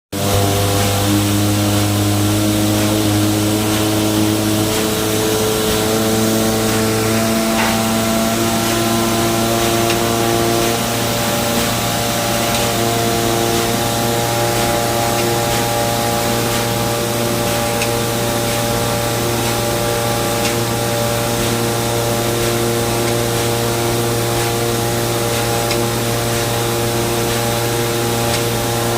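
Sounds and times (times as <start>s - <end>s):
car engine running: 0.2s - 18.7s
engine hiss and hum: 0.2s - 28.9s.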